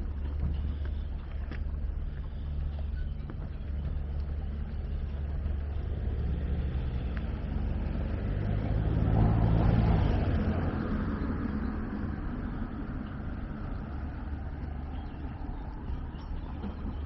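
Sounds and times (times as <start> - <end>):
vehicle engine passing: 3.7 - 17.0.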